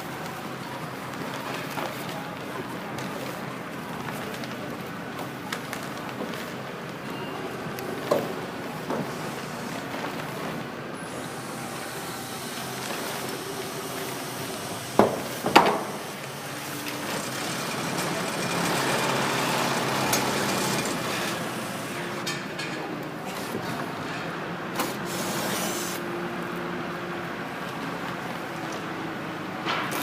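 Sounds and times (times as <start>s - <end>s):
steady background noise: 0.0s - 30.0s
hiss: 24.8s - 26.0s.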